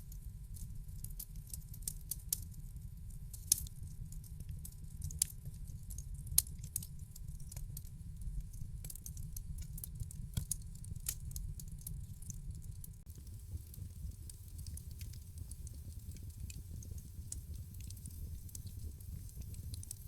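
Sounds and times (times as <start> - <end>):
low rumble of flames: 2.6 - 20.0
fire pops and snaps: 4.7 - 20.0.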